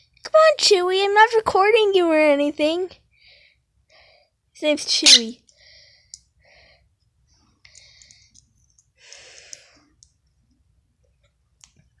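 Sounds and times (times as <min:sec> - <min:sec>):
faint clicking: 0:07.6 - 0:10.3.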